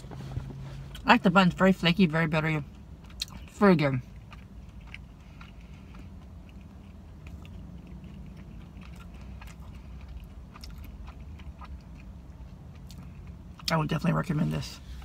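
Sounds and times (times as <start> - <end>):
low steady hum: 0.0 - 15.0
chewing with mouth clicks: 2.4 - 14.1.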